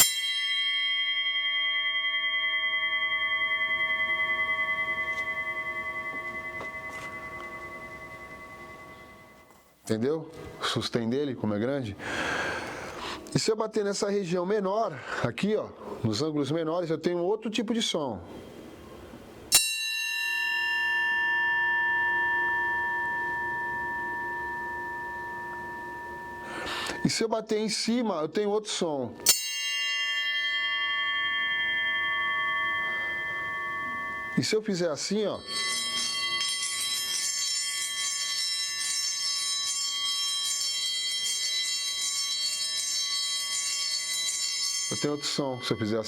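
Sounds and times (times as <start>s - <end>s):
brake disc struck as a bell: 0.0s - 9.4s
metal disc ringing like a bell: 0.0s - 9.6s, 18.4s - 28.0s, 29.2s - 46.0s.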